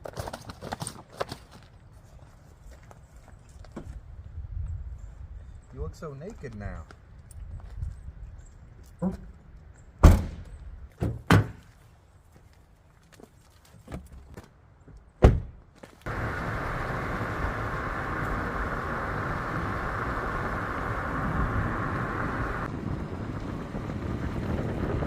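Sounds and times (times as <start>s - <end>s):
car door slamming: 10.0s - 10.4s, 15.2s - 15.5s
steady rushing noise: 16.1s - 25.0s.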